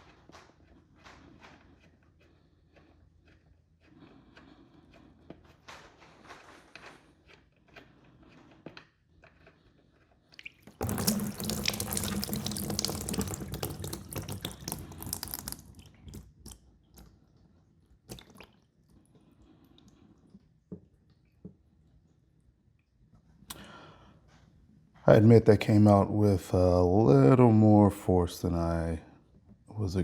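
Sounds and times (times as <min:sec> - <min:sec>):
oil gushing into a pan: 0:10.5 - 0:16.5.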